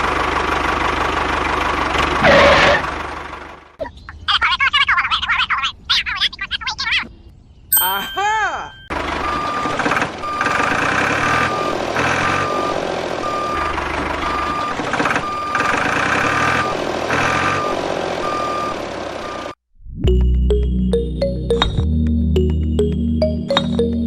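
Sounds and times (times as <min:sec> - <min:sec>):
engine noise: 0:00.0 - 0:03.8, 0:08.9 - 0:19.6
reversing beeper beeps: 0:08.7 - 0:10.6, 0:11.2 - 0:15.6
music: 0:19.9 - 0:24.0.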